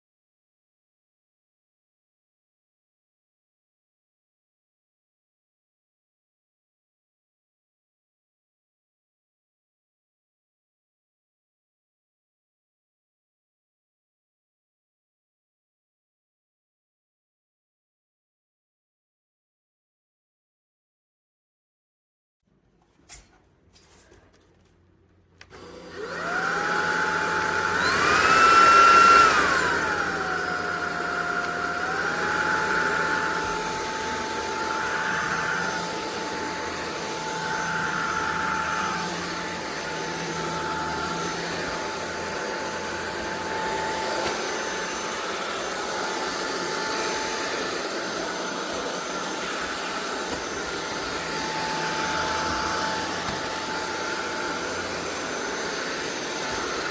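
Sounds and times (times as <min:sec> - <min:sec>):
vacuum motor high whine: 0:25.5 - 0:56.9.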